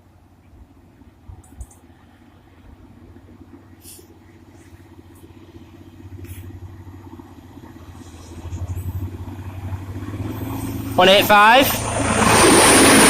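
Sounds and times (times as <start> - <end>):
diesel train drone: 0.0 - 13.0
brief high hisses: 3.8 - 4.1.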